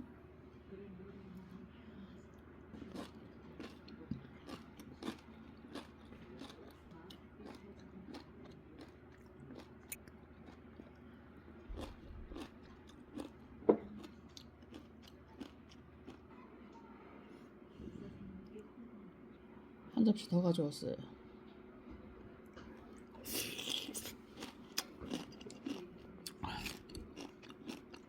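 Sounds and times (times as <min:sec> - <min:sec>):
person chewing and crunching food: 0:02.7 - 0:16.3, 0:22.4 - 0:28.0.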